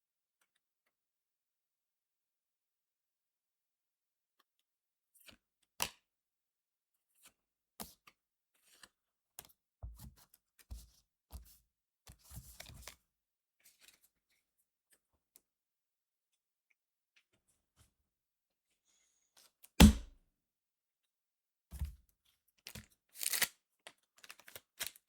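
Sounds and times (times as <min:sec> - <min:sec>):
dull bumps against table: 0:19.8 - 0:20.1
cards crinkling and rustling: 0:22.6 - 0:25.0.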